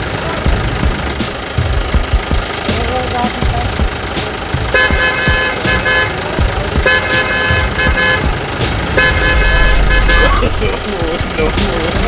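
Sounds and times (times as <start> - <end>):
vehicle horn honking: 4.7 - 10.6
steady low rumble: 8.3 - 11.4.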